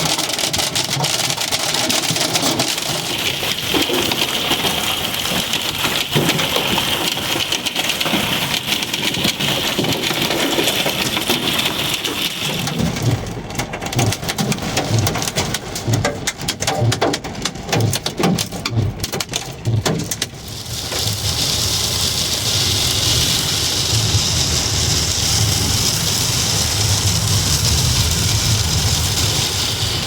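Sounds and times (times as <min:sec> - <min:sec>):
hail clattering on car metal: 0:00.0 - 0:30.0
road noise: 0:08.7 - 0:30.0
rain hiss: 0:20.4 - 0:30.0.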